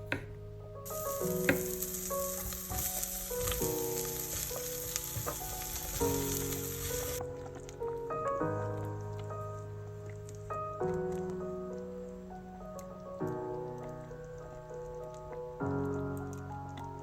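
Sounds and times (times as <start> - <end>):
soft background music: 0.0 - 17.0
food sizzling as it fries: 0.9 - 7.2.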